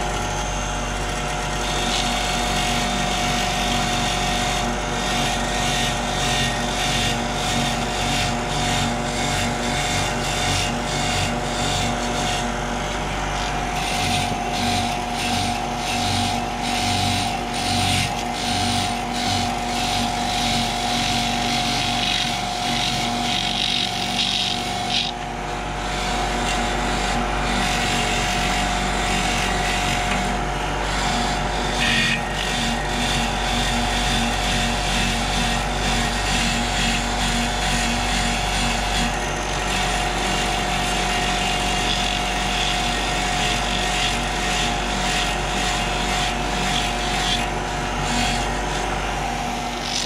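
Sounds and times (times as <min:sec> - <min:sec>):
power tool motor hum: 0:00.0 - 0:50.0.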